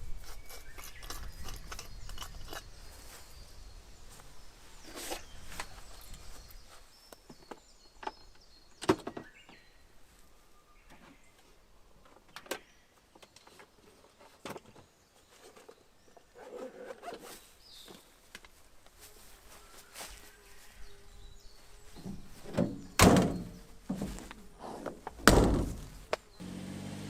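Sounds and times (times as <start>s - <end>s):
rustling: 16.4s - 26.4s.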